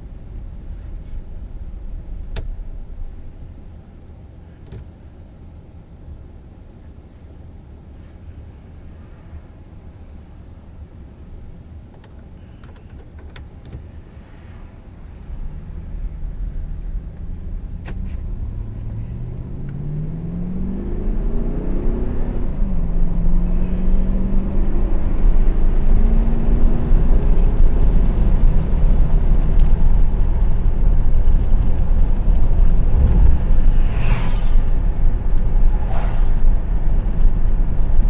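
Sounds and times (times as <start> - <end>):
road noise: 0.0 - 38.0
car engine accelerating: 14.2 - 38.0.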